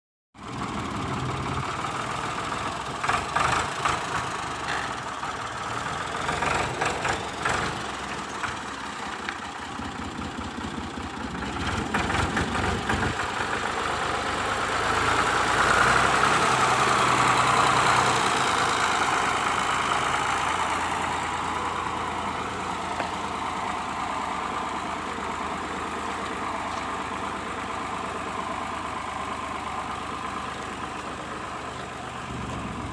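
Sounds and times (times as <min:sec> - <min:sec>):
loud engine bursts: 0:00.4 - 0:08.6
tractor engine running: 0:00.4 - 0:32.9.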